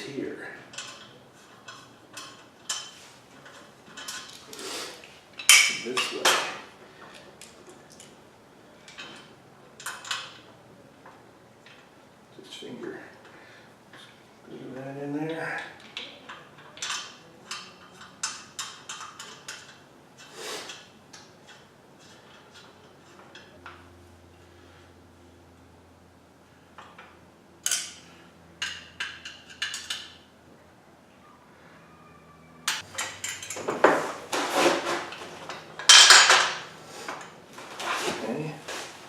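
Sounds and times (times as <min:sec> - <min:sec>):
metal parts clicking and tapping: 0:00.7 - 0:04.5, 0:05.3 - 0:08.2, 0:15.8 - 0:23.7, 0:26.8 - 0:28.0, 0:28.6 - 0:30.2, 0:32.7 - 0:37.3
metal parts clanking: 0:00.7 - 0:04.6, 0:05.4 - 0:06.7, 0:32.7 - 0:38.2
metal scrape: 0:33.3 - 0:39.0.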